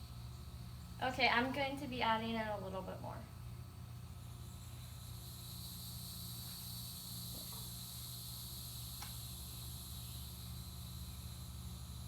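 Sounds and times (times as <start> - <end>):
low electrical hum: 0.0 - 12.0
high hiss: 4.4 - 12.0.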